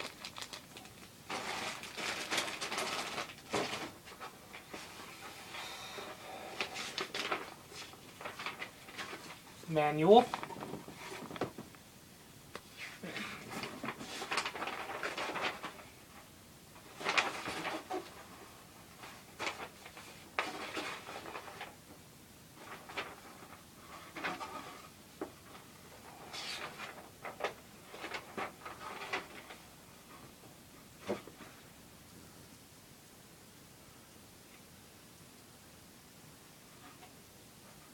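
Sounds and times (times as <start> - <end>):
plastic and paper rustling: 0.0 - 5.4, 6.0 - 11.8, 13.2 - 21.8, 22.5 - 30.4.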